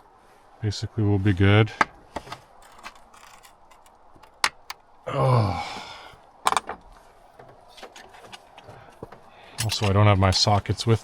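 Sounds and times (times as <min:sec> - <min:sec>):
metal hand tools clinking: 0:02.3 - 0:04.8, 0:09.6 - 0:11.0
short sighing vocal sound: 0:05.1 - 0:06.2.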